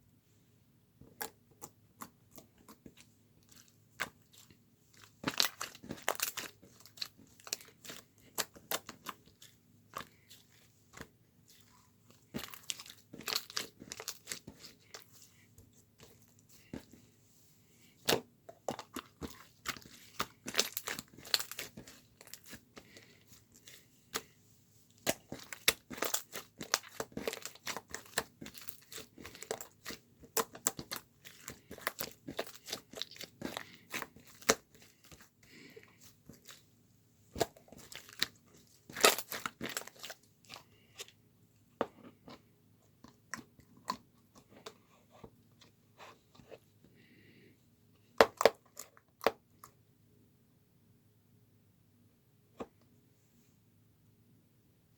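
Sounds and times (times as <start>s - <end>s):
crunching and crackling: 2.0s - 17.0s, 18.1s - 36.7s, 37.3s - 41.2s.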